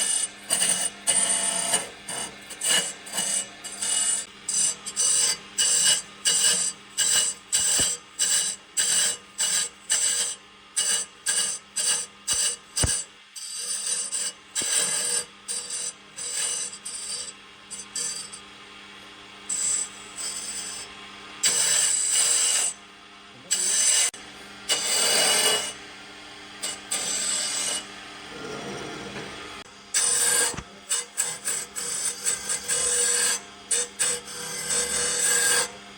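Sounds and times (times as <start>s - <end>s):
hand tool scraping wood: 10.8s - 13.0s.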